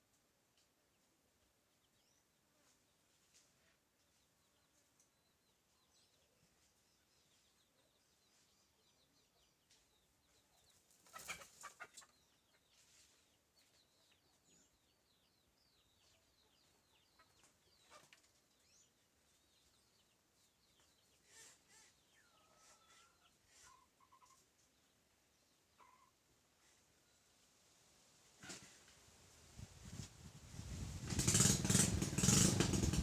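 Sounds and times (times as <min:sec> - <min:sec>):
small birds chirping: 0:04.0 - 0:26.1.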